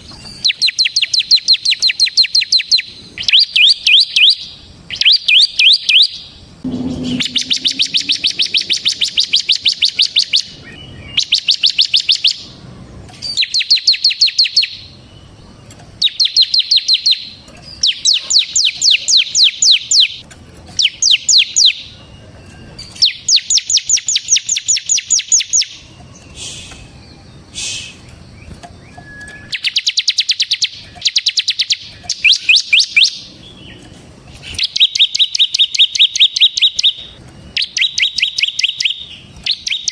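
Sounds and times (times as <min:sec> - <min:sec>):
bird rattling trills: 0:06.6 - 0:10.6.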